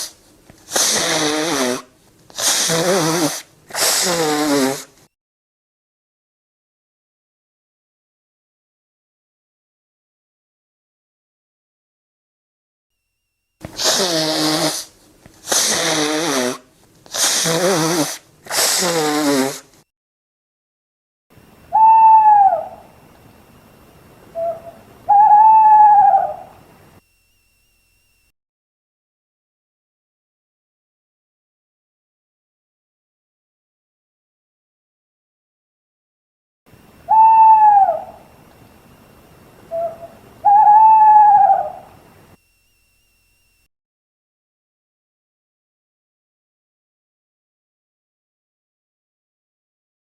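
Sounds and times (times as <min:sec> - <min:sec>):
owl hooting: 0:00.0 - 0:04.8, 0:13.7 - 0:19.6, 0:21.7 - 0:23.0, 0:24.3 - 0:26.7, 0:37.0 - 0:38.4, 0:39.6 - 0:42.0.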